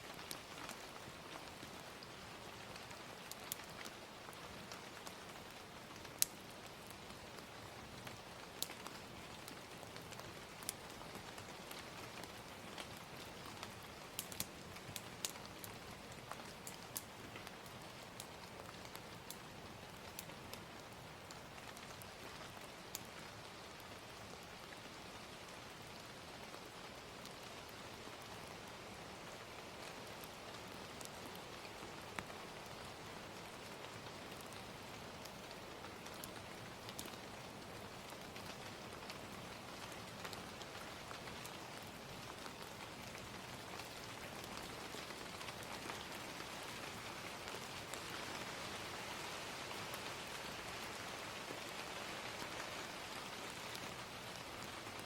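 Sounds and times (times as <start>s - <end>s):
gentle rain: 0.0s - 55.0s
wood fire crackling and popping: 0.1s - 23.8s, 29.8s - 49.0s.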